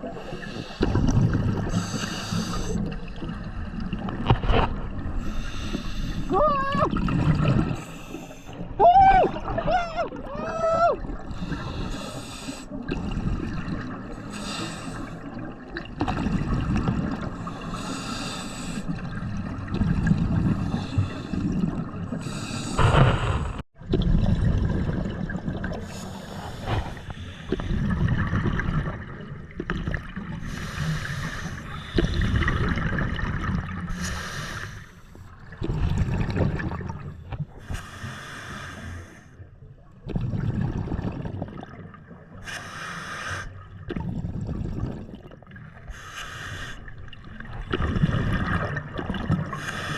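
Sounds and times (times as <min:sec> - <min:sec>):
gurgle of bubbles: 0:00.0 - 0:34.6, 0:35.3 - 0:37.8, 0:39.7 - 0:42.6, 0:43.5 - 0:46.1, 0:46.9 - 0:49.9
diver breathing through regulator: 0:00.2 - 0:02.9, 0:05.1 - 0:06.3, 0:11.3 - 0:12.8, 0:14.2 - 0:15.3, 0:17.4 - 0:18.9, 0:20.4 - 0:23.6, 0:25.8 - 0:28.1, 0:30.4 - 0:32.5, 0:33.9 - 0:35.2, 0:37.6 - 0:39.4, 0:42.4 - 0:43.6, 0:45.8 - 0:47.0, 0:49.5 - 0:49.9
low underwater rumble: 0:21.5 - 0:30.6.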